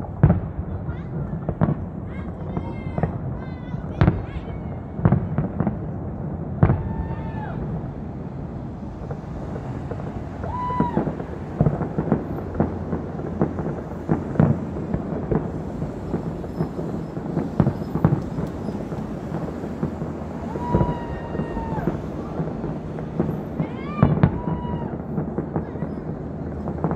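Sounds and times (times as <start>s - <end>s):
fireworks bangs and crackles: 0.0s - 26.9s.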